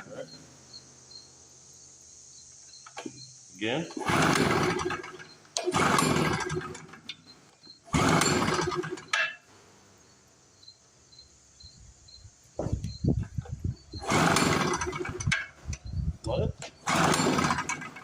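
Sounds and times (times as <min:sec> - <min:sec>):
generator engine cranking: 0:03.8 - 0:09.4, 0:13.2 - 0:18.0
recoil starter pulled: 0:03.8 - 0:09.4, 0:13.2 - 0:18.0
loose knocks: 0:12.6 - 0:13.0.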